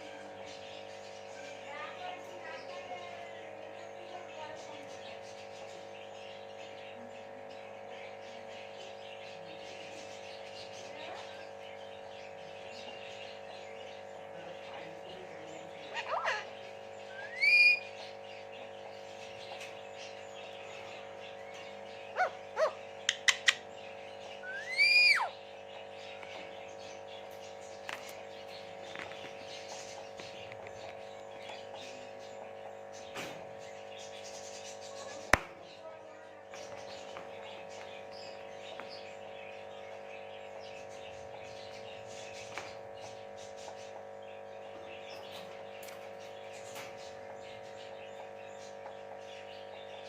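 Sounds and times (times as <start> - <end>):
cage birds chirping: 0.0 - 50.0
parrot chirps: 15.8 - 18.1, 22.0 - 25.5.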